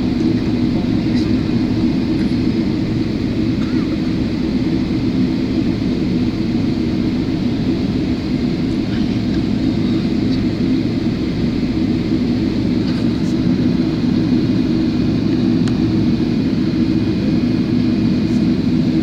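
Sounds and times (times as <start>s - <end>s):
air conditioning: 0.0s - 19.0s
jet engine cabin rumble: 0.0s - 19.0s.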